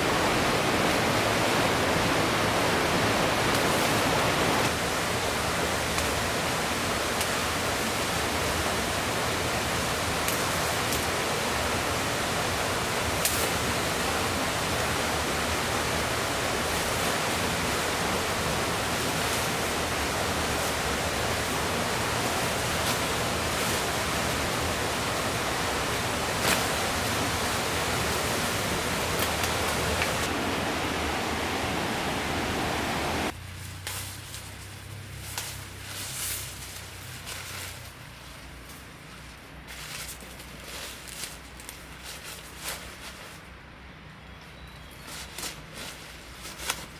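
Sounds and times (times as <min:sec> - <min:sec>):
river water rushing: 0:00.0 - 0:33.3.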